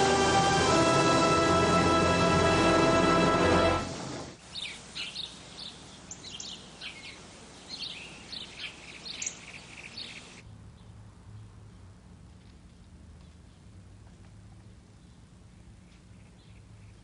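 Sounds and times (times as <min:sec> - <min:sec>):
birds chirping: 0:03.6 - 0:10.4.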